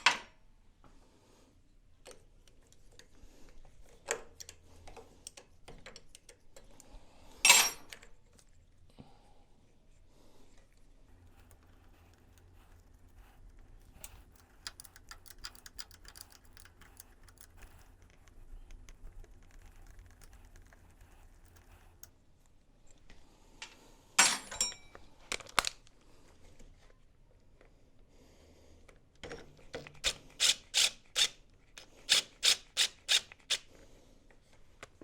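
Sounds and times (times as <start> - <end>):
tapping on small metal parts: 14.0 - 17.8, 23.6 - 25.0.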